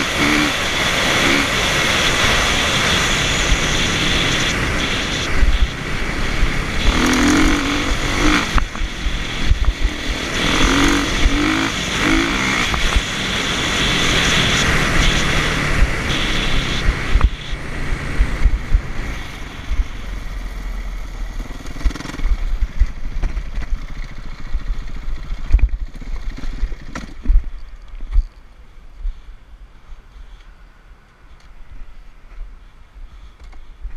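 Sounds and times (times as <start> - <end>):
dirt bike engine revving: 0.0 - 20.3, 21.2 - 25.0.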